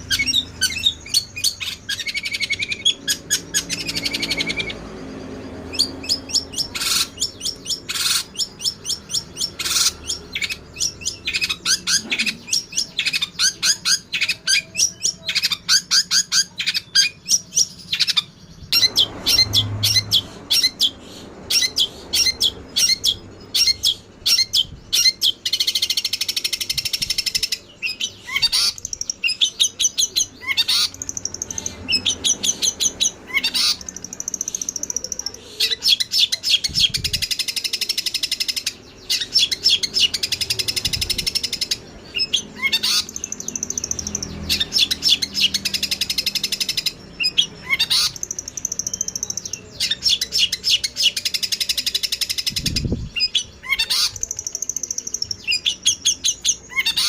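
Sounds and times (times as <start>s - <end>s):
harsh scratchy bird chatter: 0.0s - 57.0s
sparrows chirping and twittering: 0.0s - 57.0s.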